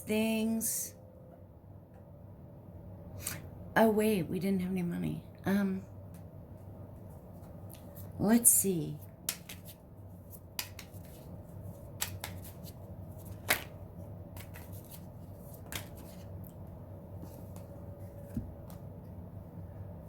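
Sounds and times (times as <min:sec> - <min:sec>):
faint steady hum: 0:00.0 - 0:20.0
cards being shuffled: 0:09.2 - 0:16.6.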